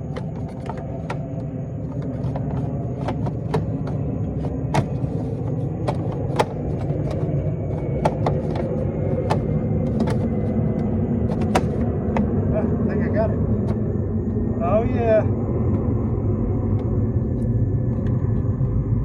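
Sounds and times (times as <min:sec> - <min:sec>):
parts clicking and knocking: 0:00.0 - 0:12.4
steady low rumble: 0:00.0 - 0:19.0.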